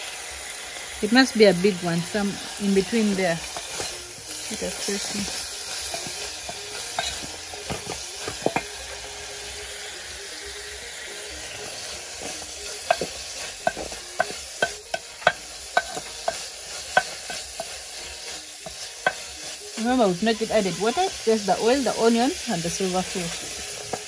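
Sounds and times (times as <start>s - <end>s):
fish and onion sizzling in oil: 0.0s - 24.0s
spoon knocking against pot: 5.9s - 8.7s, 12.8s - 17.6s.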